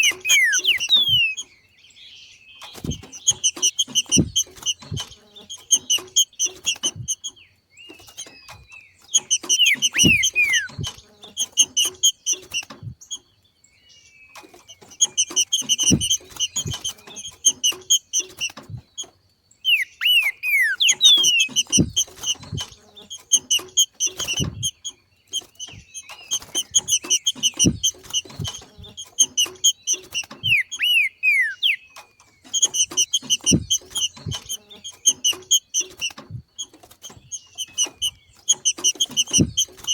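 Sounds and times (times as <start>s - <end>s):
bird chattering: 0.0s - 1.5s, 2.6s - 13.3s, 14.4s - 39.9s
bird whistled slurs: 0.0s - 1.5s, 9.2s - 11.0s, 19.6s - 22.6s, 29.2s - 31.9s
soft low thumps: 2.8s - 7.2s, 8.5s - 13.0s, 15.0s - 17.6s, 18.6s - 19.0s, 21.2s - 22.8s, 25.6s - 29.0s, 32.8s - 35.2s, 39.1s - 39.8s.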